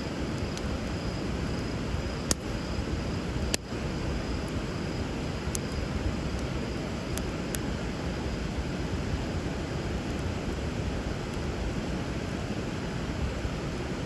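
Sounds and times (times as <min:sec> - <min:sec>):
bonfire crackling: 0:00.0 - 0:14.0
sharp pops of fire: 0:00.2 - 0:07.7.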